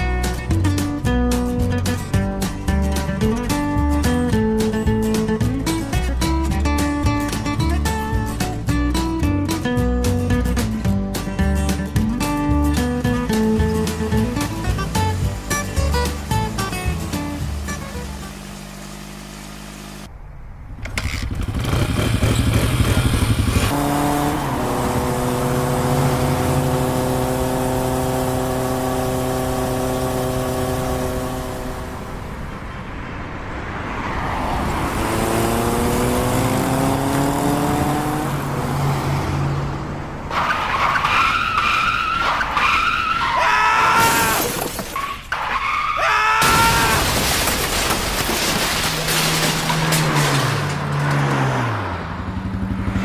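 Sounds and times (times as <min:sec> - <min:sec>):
car engine revving: 0:20.9 - 0:32.3, 0:34.2 - 0:43.4, 0:47.0 - 0:53.0
tyres squealing: 0:40.3 - 0:51.7.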